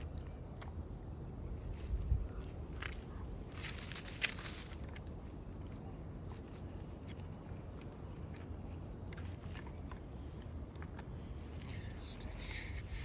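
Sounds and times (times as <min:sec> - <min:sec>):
steady low rumble: 0:00.0 - 0:13.0
twigs and leaves crackling: 0:01.6 - 0:13.0.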